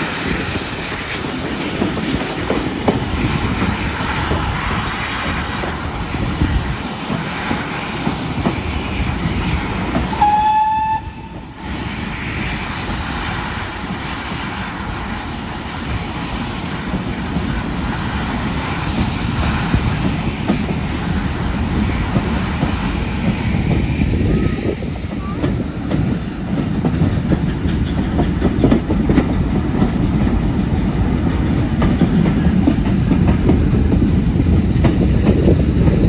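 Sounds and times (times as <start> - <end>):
steam train rumbling: 0.0 - 36.0
high train whistle: 10.1 - 11.7.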